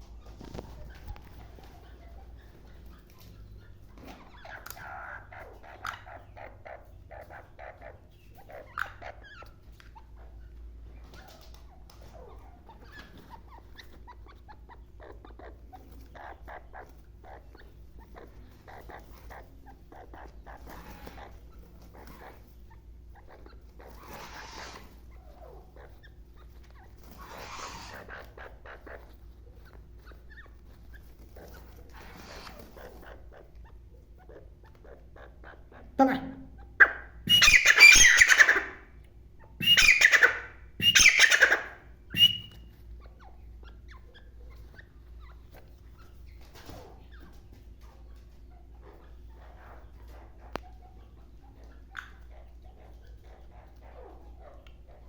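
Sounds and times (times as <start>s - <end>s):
bird harsh rasping calls: 23.2s - 26.0s, 27.0s - 29.1s, 34.3s - 38.9s, 39.6s - 42.7s.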